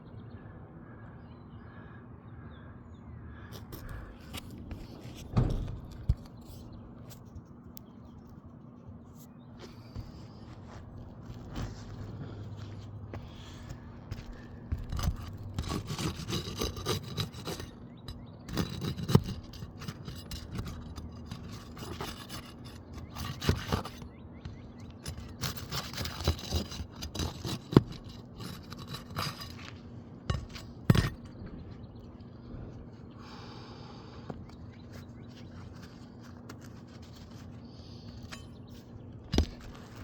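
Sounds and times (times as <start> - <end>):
scraping on roof shingles: 9.6 - 31.8, 34.8 - 40.0.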